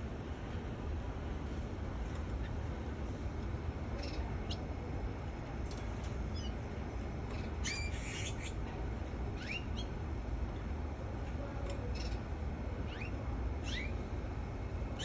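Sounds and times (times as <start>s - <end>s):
canary chirping: 4.0s - 4.6s, 6.3s - 6.5s, 7.3s - 8.6s, 9.4s - 10.0s, 12.9s - 14.0s.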